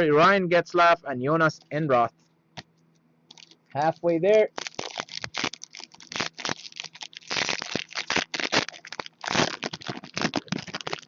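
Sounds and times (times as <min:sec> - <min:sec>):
card wrappers crinkling and tearing: 0:03.3 - 0:11.0.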